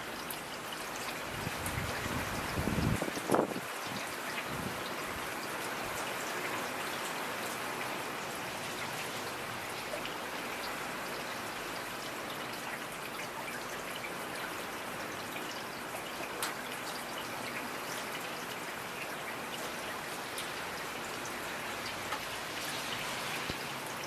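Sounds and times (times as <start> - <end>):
raindrops ticking: 9.6 - 22.7
rain hissing: 18.3 - 24.0.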